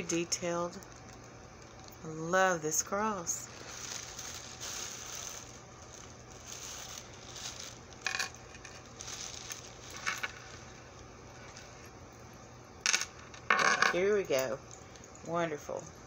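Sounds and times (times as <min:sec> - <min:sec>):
soft handling rustle: 0:03.1 - 0:12.3
metal jewelry clinking: 0:03.3 - 0:11.9.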